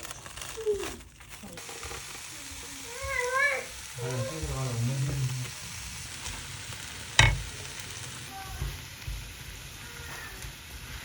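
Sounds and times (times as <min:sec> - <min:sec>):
steady hiss: 0:00.0 - 0:11.0
sharp knock: 0:07.2 - 0:07.5.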